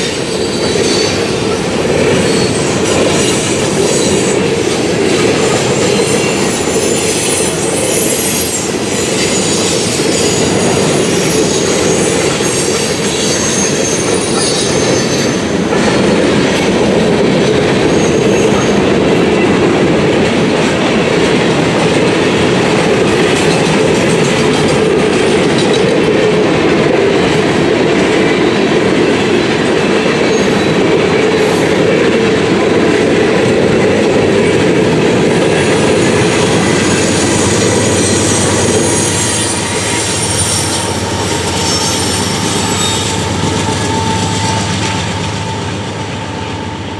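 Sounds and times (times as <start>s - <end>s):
freight train cars rolling past: 0.0s - 46.9s
high-pitched wheel squeal: 5.7s - 15.5s, 35.4s - 45.7s.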